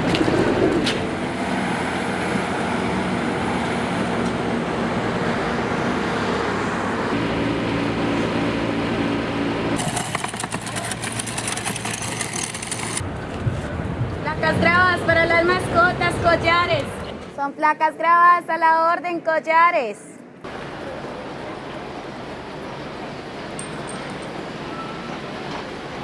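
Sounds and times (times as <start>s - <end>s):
vehicle engine running: 7.2s - 17.4s
rapid rattling clatter: 9.8s - 14.1s.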